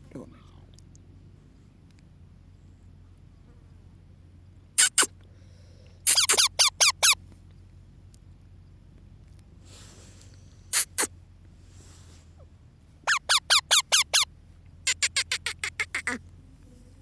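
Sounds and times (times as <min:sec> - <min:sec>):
parrot chick squeaking: 0:04.8 - 0:05.1, 0:06.1 - 0:07.2, 0:10.7 - 0:11.1, 0:13.0 - 0:14.3, 0:14.9 - 0:16.2.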